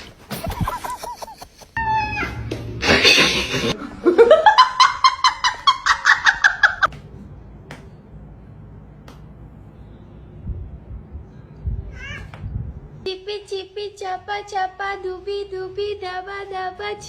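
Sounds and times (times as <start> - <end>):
high-pitched rapid laughter: 0.4 - 2.2, 2.8 - 6.9.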